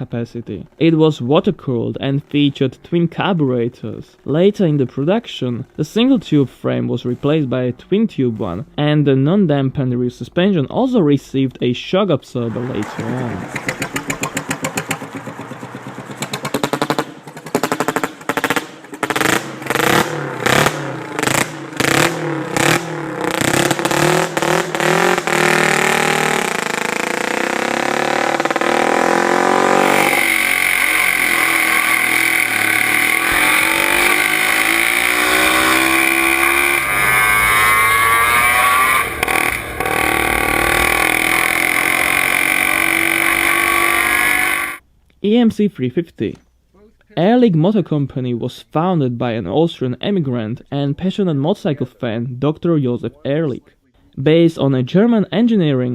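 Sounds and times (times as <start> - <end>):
two-stroke motorcycle engine revving: 12.5 - 44.8.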